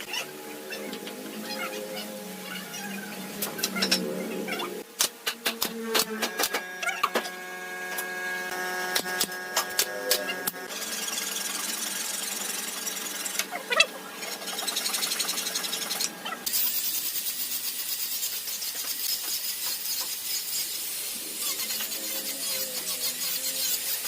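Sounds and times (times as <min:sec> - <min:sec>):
power tool rasping wood: 0:05.4 - 0:24.0.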